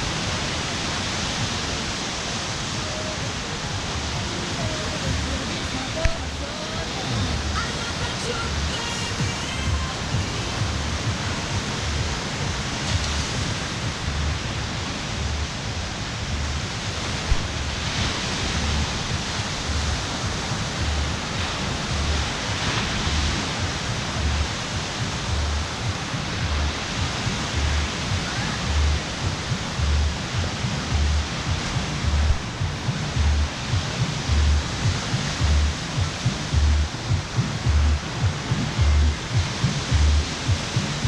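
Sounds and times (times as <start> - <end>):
outdoor rush of noise: 0.0 - 41.0
low repeating thump: 23.6 - 41.0.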